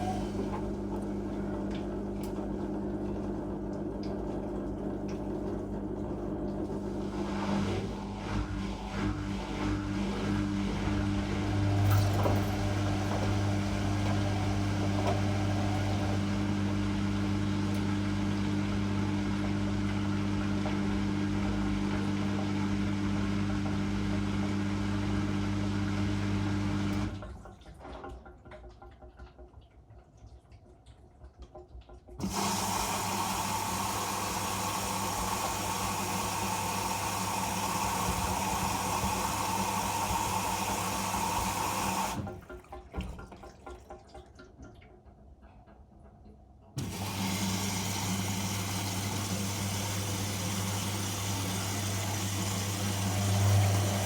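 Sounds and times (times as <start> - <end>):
water draining: 0.0 - 18.2, 31.8 - 45.1, 46.8 - 54.0
drain pump humming: 0.0 - 28.2, 32.2 - 45.0, 46.8 - 54.0
water rushing into machine: 0.0 - 28.6, 32.2 - 44.8, 46.8 - 54.0.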